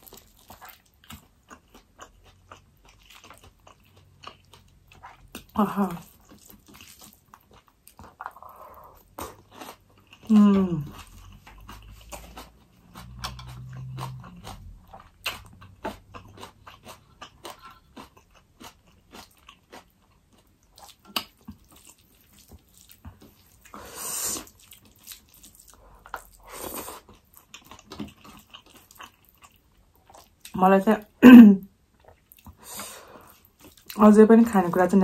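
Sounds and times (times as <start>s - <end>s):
person chewing food: 0.0s - 30.6s, 31.7s - 34.0s
person humming mmm: 10.3s - 11.1s.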